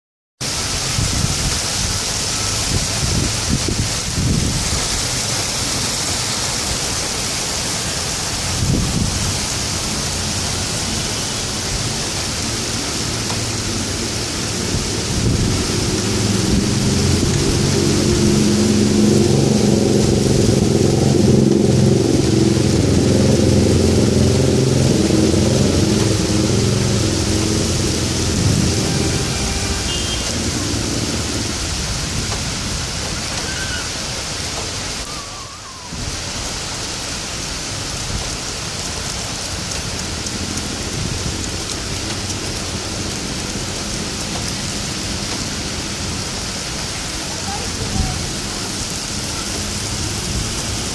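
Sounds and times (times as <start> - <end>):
heavy rain hissing: 0.4 - 50.9
low rumble: 13.6 - 32.7.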